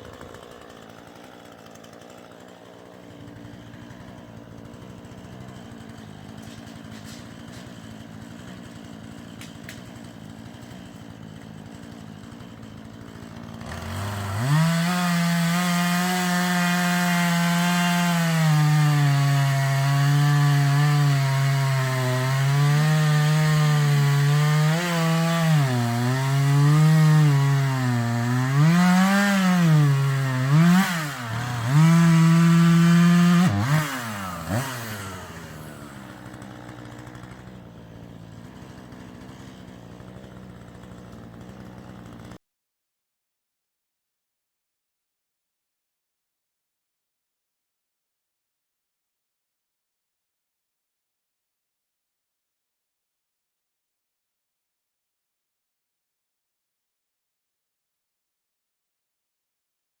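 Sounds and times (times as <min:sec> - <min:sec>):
chainsaw cutting into wood: 0:00.0 - 0:42.4
chainsaw idling and revving: 0:00.0 - 0:42.4.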